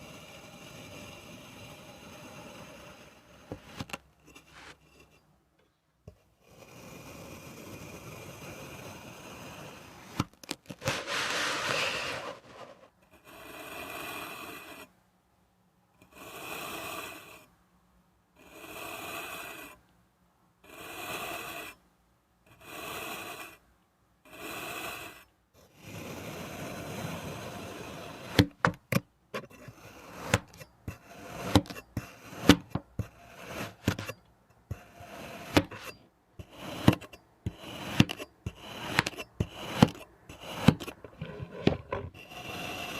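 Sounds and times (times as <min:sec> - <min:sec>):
sand being scraped: 0:01.9 - 0:05.0, 0:08.0 - 0:12.9, 0:25.8 - 0:28.8, 0:29.4 - 0:42.9.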